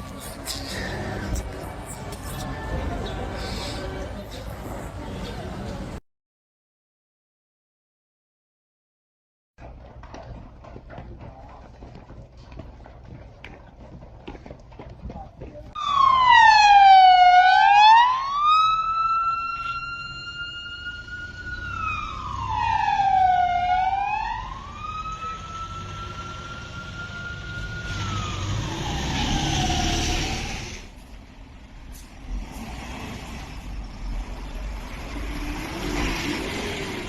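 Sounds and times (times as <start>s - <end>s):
emergency siren wailing: 15.8s - 30.6s.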